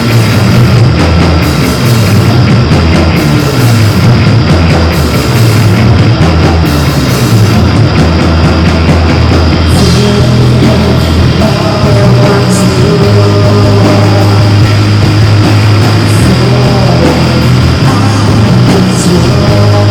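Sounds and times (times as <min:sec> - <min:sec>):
bass notes: 0:00.0 - 0:19.9
electric guitar: 0:00.0 - 0:19.9
live rock band playing: 0:00.0 - 0:19.9.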